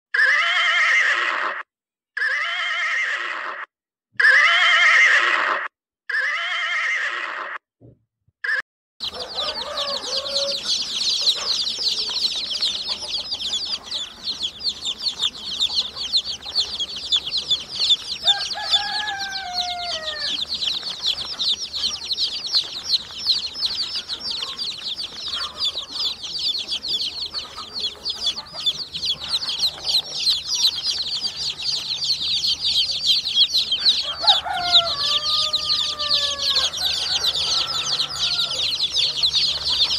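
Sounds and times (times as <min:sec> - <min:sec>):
horse whinnying: 0:00.2 - 0:01.6, 0:02.2 - 0:03.6, 0:04.2 - 0:07.6
chicks peeping: 0:09.0 - 0:39.9.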